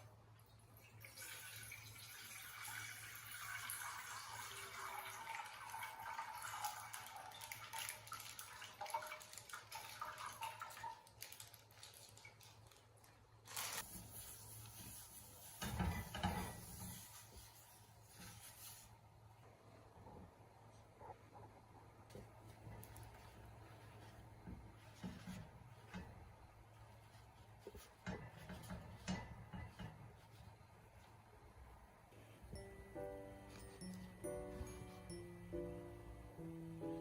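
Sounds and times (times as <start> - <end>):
water running from tap into sink: 0.9 - 10.9
faint low hum: 11.5 - 37.0.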